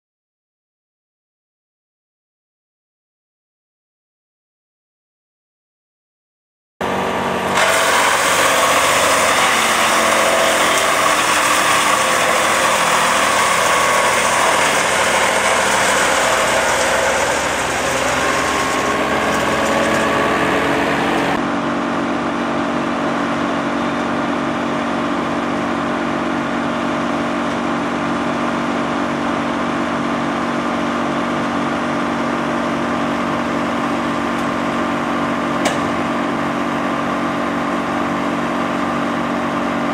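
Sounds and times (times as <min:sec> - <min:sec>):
harsh noisy rush: 0:06.8 - 0:21.4
wood chipper running: 0:06.8 - 0:39.9.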